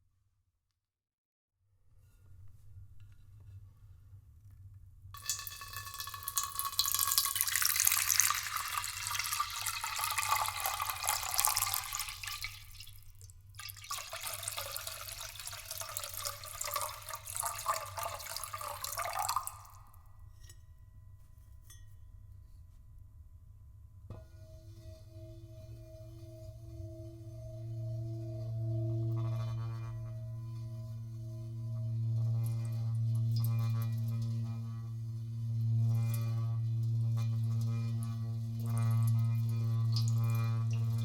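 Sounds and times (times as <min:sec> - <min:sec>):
water pouring into vessel: 0:05.2 - 0:19.9, 0:37.2 - 0:41.0
faint low hum: 0:14.8 - 0:41.0.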